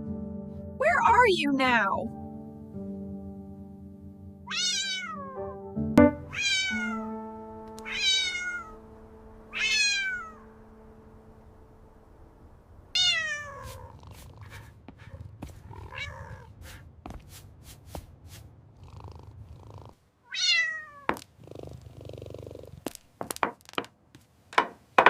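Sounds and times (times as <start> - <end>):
soft background music: 0.0 - 12.2
cat meowing: 4.5 - 5.6, 6.3 - 7.1, 7.8 - 8.8, 9.5 - 10.5, 12.9 - 16.8, 20.3 - 21.2.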